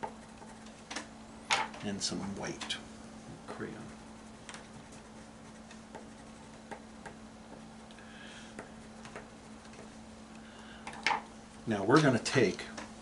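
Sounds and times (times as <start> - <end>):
crayon scratching on paper: 0.0 - 0.8, 4.2 - 6.9
steady low hum: 0.0 - 13.0
crayon rubbing: 4.2 - 6.9.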